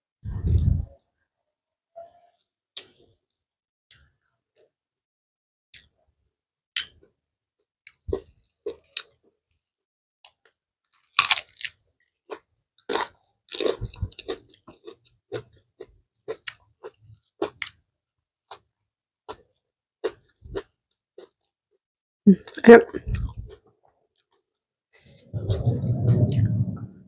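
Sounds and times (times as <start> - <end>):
crunchy chewing: 10.9 - 17.8.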